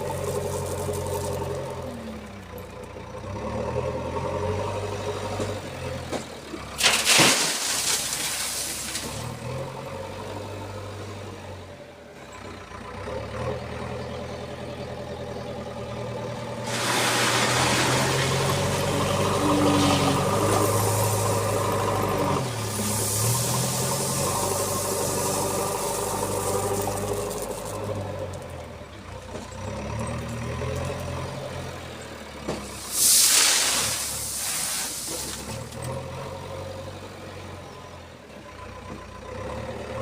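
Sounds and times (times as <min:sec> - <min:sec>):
stone chips pouring: 0:00.0 - 0:02.0, 0:06.8 - 0:09.4, 0:16.6 - 0:28.7, 0:32.7 - 0:35.8
backhoe diesel engine under load: 0:00.0 - 0:40.0.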